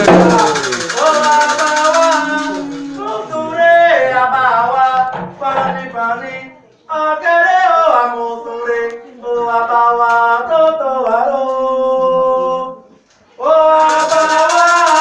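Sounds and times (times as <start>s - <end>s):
rattle shaking: 0.0s - 3.4s, 13.6s - 15.0s
voices chanting: 0.0s - 6.5s.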